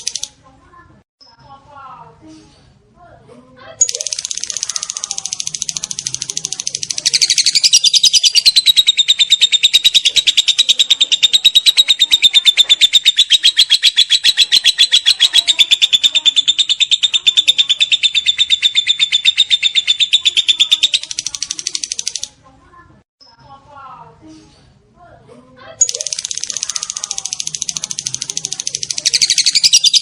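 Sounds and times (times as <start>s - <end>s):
lovebird chattering trill: 0.0s - 0.3s, 3.8s - 22.3s, 25.8s - 30.0s.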